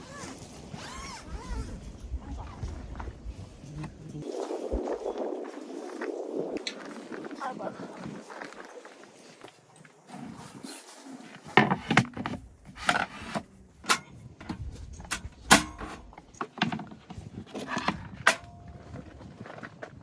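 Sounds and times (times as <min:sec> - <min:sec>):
camping gear knocking and clattering: 0:08.1 - 0:20.0.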